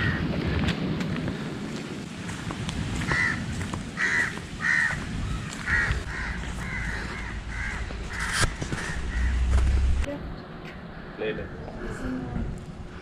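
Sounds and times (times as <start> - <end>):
bird calling: 4.0 - 10.1
low rumble: 5.9 - 10.9.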